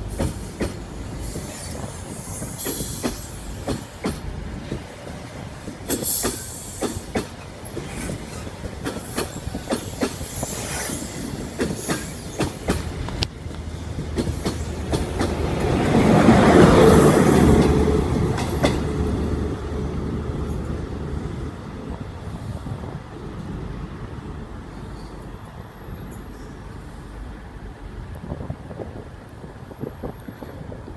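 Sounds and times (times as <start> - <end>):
train wheels clacking over rail joints: 0.0 - 19.0.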